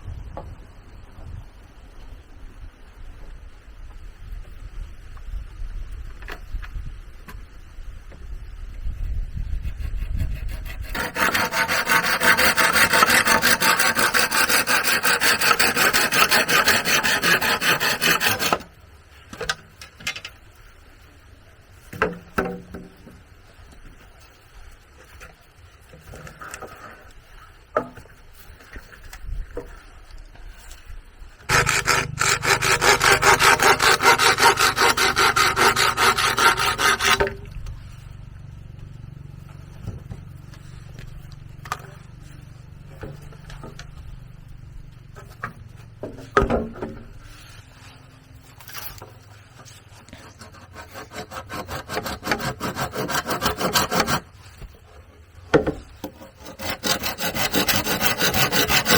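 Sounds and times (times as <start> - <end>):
quiet scraping: 9.6 - 19.3, 24.0 - 38.6
hand saw cutting bamboo: 9.7 - 18.7, 31.5 - 37.4, 50.1 - 54.4, 56.0 - 58.9.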